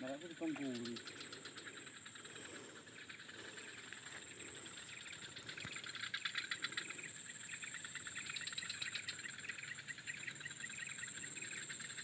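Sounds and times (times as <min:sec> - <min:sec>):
birds chirping: 0:00.0 - 0:05.8.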